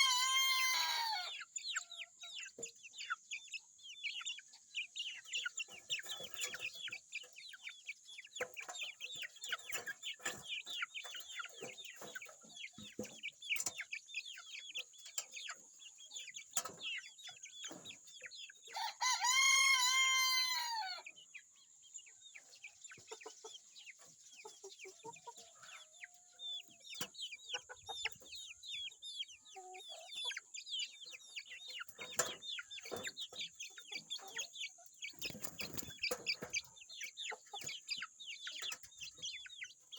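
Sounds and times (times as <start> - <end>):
rooster crowing: 0.0 - 1.3, 18.7 - 21.0
chickens clucking and peeping: 0.0 - 39.9.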